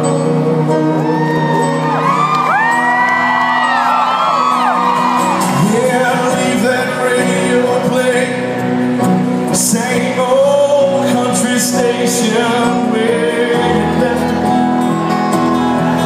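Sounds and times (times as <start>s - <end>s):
country band playing: 0.0s - 16.0s
audience whooping and shouting: 1.0s - 6.6s.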